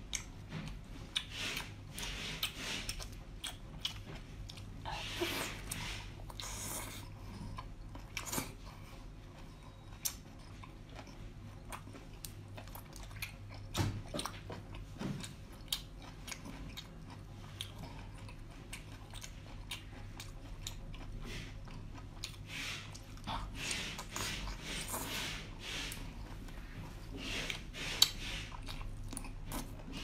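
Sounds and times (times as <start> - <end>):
wet chewing and biting: 0.0 - 4.8.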